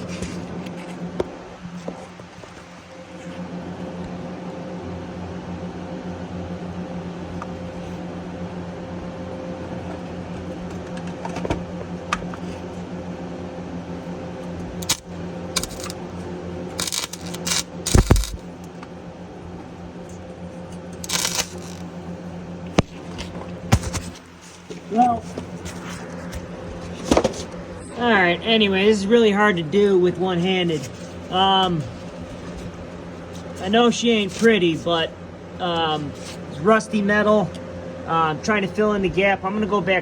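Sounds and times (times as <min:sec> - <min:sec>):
welder low hum: 0:00.0 - 0:39.7
welding arc crackle: 0:14.8 - 0:18.8, 0:20.9 - 0:22.1.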